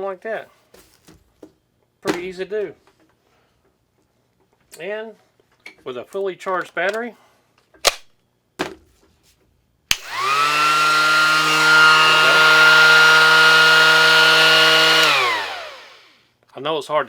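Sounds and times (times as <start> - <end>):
orbital sander motor whining: 9.9 - 16.2.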